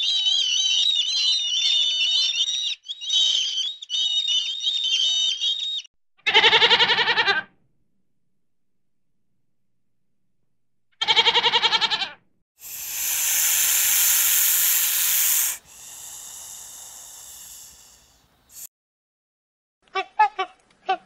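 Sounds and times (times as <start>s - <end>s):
goat bleating: 6.2s - 7.5s, 11.0s - 12.2s
snake hissing: 12.6s - 18.7s.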